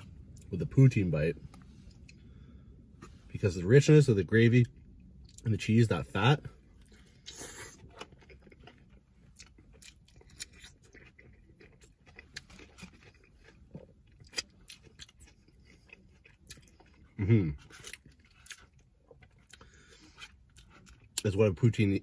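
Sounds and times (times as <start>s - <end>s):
wet chewing sounds: 6.8s - 21.3s.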